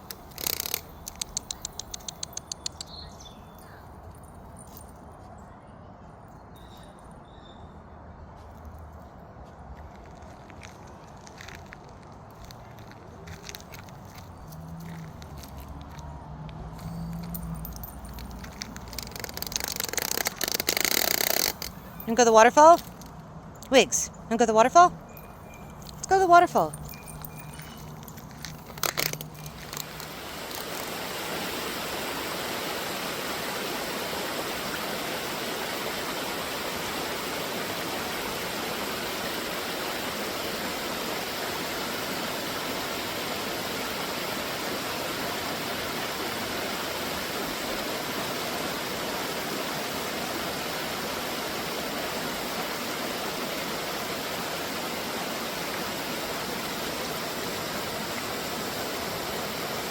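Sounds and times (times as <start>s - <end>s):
waterfall rushing: 29.6s - 59.9s.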